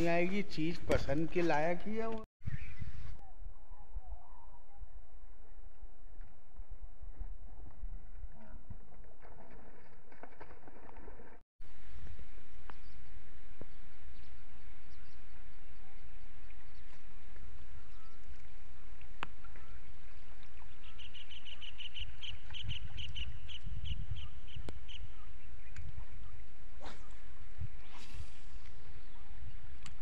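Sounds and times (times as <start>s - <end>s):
wind rumble on microphone: 2.4s - 30.0s
bird chirping: 20.7s - 25.8s.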